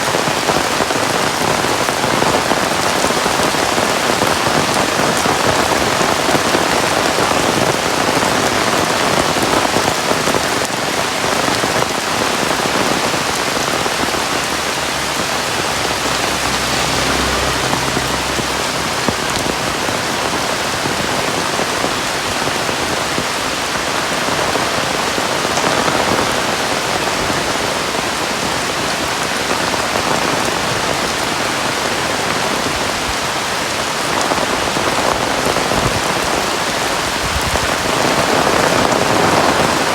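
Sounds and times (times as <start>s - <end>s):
heavy rain falling: 0.0s - 39.9s
low rumble: 14.0s - 21.0s.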